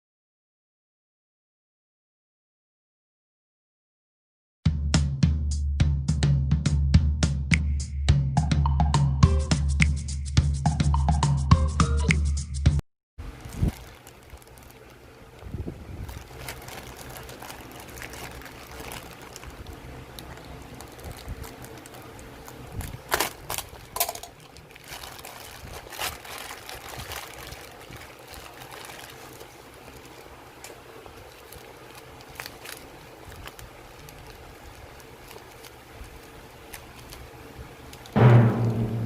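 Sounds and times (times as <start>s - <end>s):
steady low hum: 13.2s - 39.0s
handling clicks and rustles: 16.1s - 37.2s.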